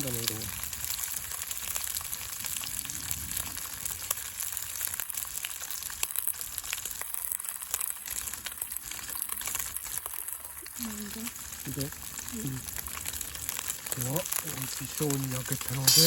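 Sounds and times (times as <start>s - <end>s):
steak sizzling over a fire: 0.0s - 16.0s
fat crackling: 7.7s - 16.0s.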